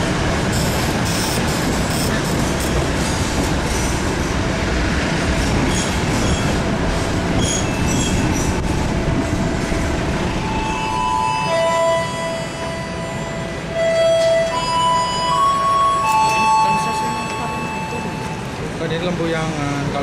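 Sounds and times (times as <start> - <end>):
train rumbling on rails: 0.0 - 20.0
melody of steady tones: 10.3 - 18.6.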